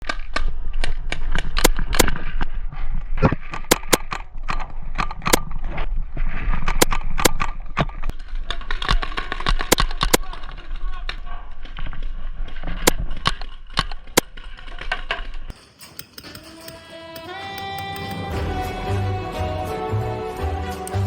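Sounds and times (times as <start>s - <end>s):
paintball markers firing: 8.4s - 10.6s.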